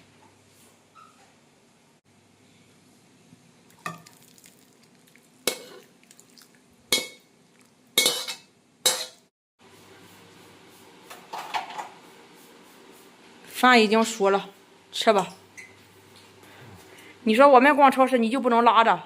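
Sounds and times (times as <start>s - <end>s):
metal utensil clinking on dishes: 5.5s - 5.9s, 8.0s - 9.2s.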